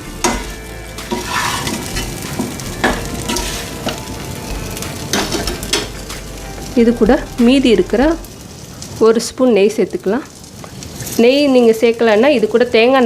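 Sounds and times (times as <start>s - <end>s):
chicken sizzling in oil: 0.0s - 13.0s
utensil scraping and knocking pan: 0.2s - 4.1s.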